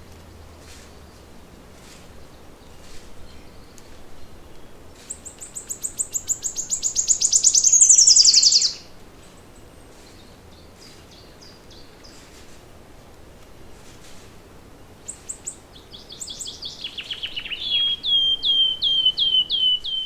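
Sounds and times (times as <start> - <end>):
faint bird chirps: 5.0 - 8.8, 15.1 - 20.0
songbird fast trill: 5.1 - 8.9, 15.1 - 20.0.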